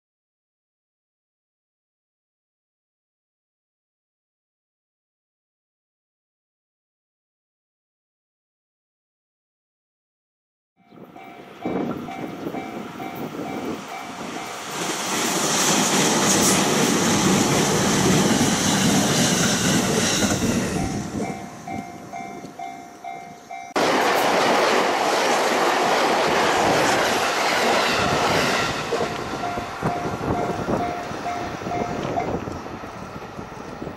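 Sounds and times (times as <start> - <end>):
level-crossing warning bell: 10.8 - 14.9, 20.4 - 24.4, 28.2 - 33.9
train rushing past: 11.0 - 33.9
train wheel clatter: 11.6 - 33.9.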